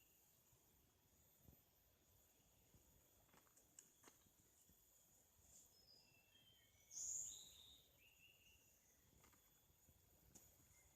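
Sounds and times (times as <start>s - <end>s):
bird singing whistled notes: 5.6s - 9.6s, 10.6s - 10.9s.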